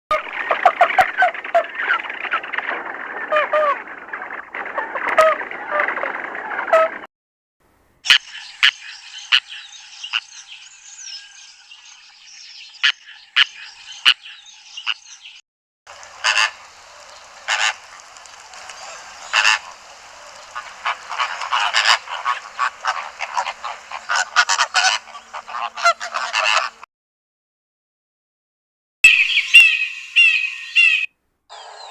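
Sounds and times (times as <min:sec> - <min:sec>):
background birdsong: 0:08.0 - 0:26.8, 0:29.1 - 0:31.9
sharp bird calls: 0:08.0 - 0:26.8, 0:29.0 - 0:31.9
loud harsh bird calls: 0:12.3 - 0:26.8, 0:29.1 - 0:31.9.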